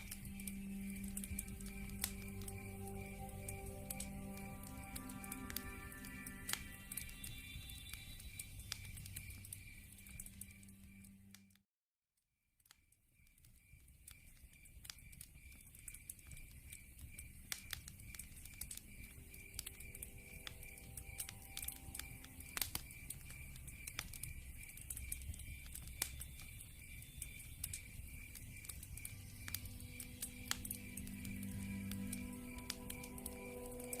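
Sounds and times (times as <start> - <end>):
crickets chirping: 0.0 - 11.3, 13.2 - 34.0
log fire crackling: 0.0 - 11.5, 12.7 - 34.0
sharp pops of fire: 13.2 - 34.0.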